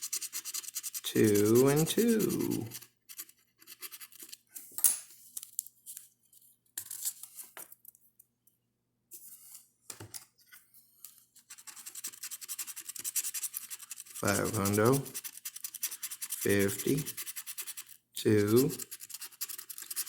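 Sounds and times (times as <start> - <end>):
scratching lottery ticket coating: 0.0 - 4.4, 11.4 - 20.0.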